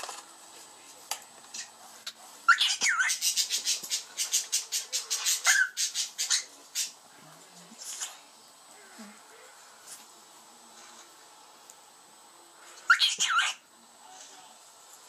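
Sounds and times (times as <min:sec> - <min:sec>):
cockatiel chirping: 0:02.5 - 0:07.0, 0:12.9 - 0:13.6.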